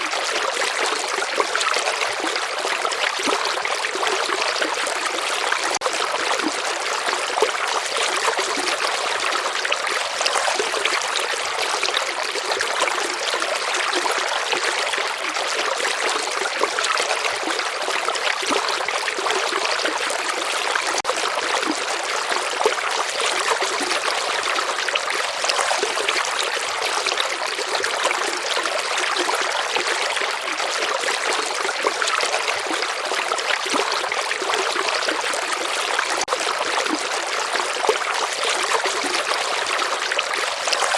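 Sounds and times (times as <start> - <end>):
river flowing: 31.0 - 40.9.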